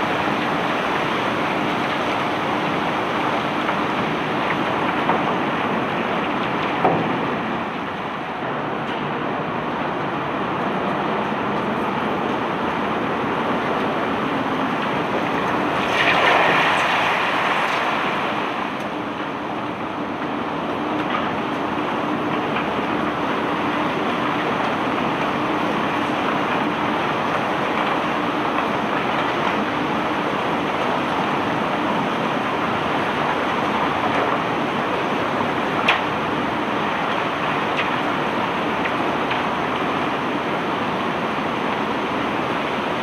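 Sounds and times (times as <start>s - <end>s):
loud rush of noise: 0.0s - 21.8s
unloading machinery noise: 0.0s - 43.0s.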